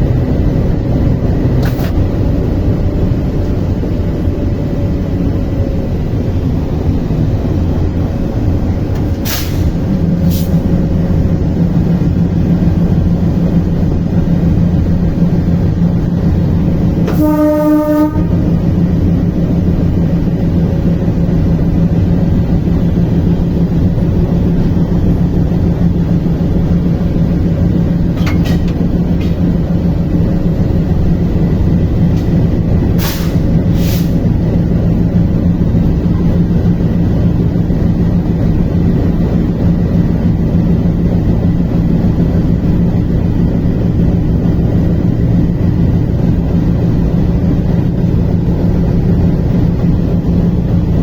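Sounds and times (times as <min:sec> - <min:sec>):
train rumbling: 0:00.0 - 0:51.0
train horn: 0:17.0 - 0:18.8.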